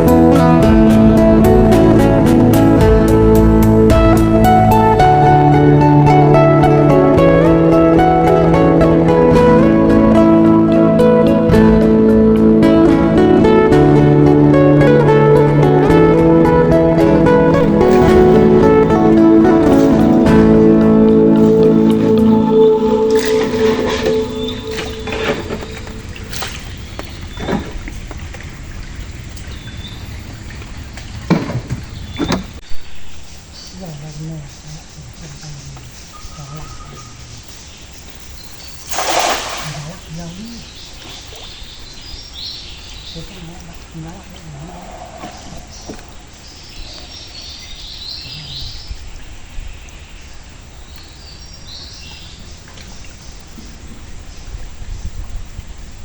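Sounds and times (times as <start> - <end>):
steady low rumble: 0.0 - 36.5
water splashing around boat: 17.5 - 32.6, 34.7 - 56.0
louder splashes or knocks: 17.6 - 22.3, 23.1 - 28.6, 30.6 - 32.6, 38.8 - 41.6
high-pitched wildlife chirping: 17.6 - 55.9.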